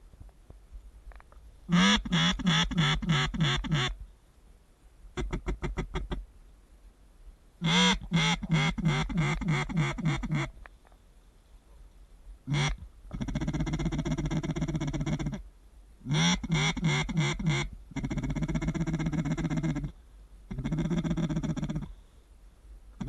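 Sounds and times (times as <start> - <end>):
duck call quacking: 1.7 - 4.0, 7.6 - 10.6, 12.5 - 15.4, 16.1 - 19.9.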